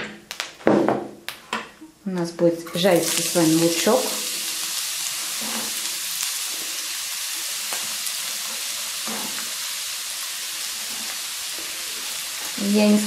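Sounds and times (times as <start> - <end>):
onion sizzling in a frying pan: 2.7 - 13.0.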